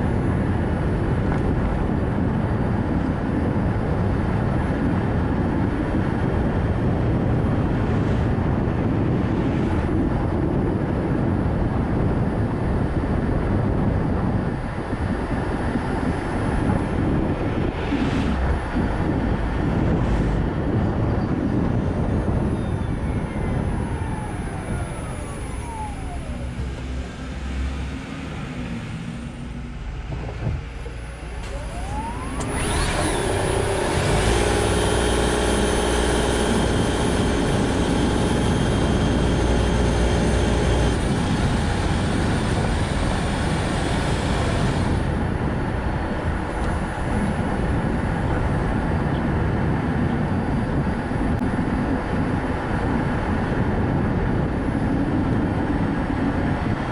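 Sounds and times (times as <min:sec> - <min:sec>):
car tyre and wind noise: 0:00.0 - 0:56.9
electric motor whine: 0:22.0 - 0:29.7, 0:30.5 - 0:45.2.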